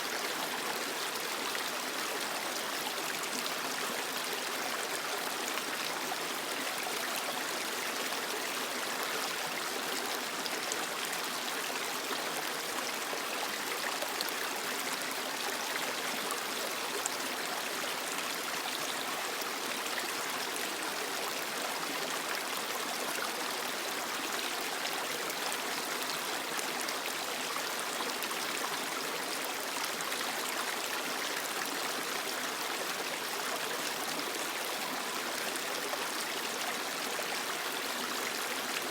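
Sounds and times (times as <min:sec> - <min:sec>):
creek flowing over rocks: 0:00.0 - 0:38.9.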